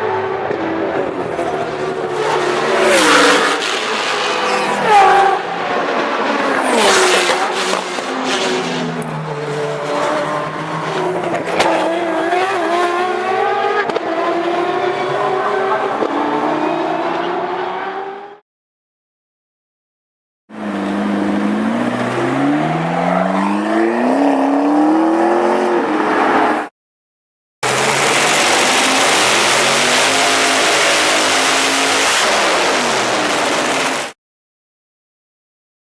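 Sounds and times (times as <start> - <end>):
rotary race car engine revving: 0.0 - 18.4, 20.5 - 26.7, 27.6 - 34.1
sharp cracks: 27.7 - 31.6.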